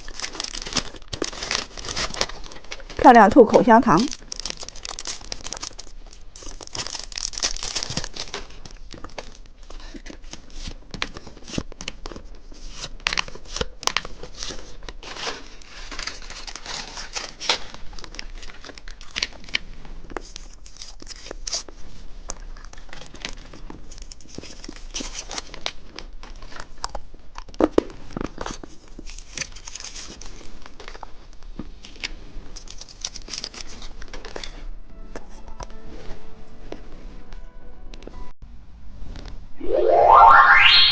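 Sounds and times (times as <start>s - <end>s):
plastic wrapper crinkling: 0.0s - 9.4s.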